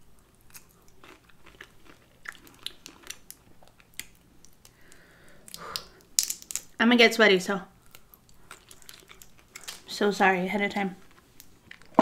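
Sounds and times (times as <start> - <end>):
chewing with wet clicks: 0.2 - 6.6, 7.8 - 9.8.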